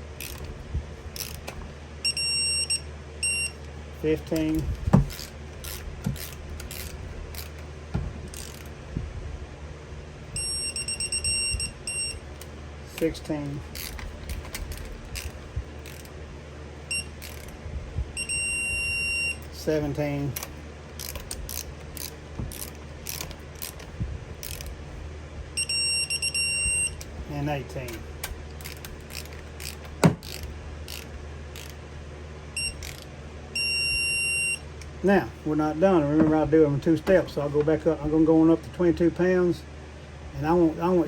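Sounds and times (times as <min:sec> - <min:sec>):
ratchet wrench clicking: 0:00.2 - 0:00.5, 0:01.2 - 0:01.5, 0:04.4 - 0:07.6, 0:08.3 - 0:08.7, 0:13.7 - 0:16.1, 0:17.2 - 0:17.5, 0:20.4 - 0:24.7, 0:28.6 - 0:31.8, 0:32.8 - 0:33.1.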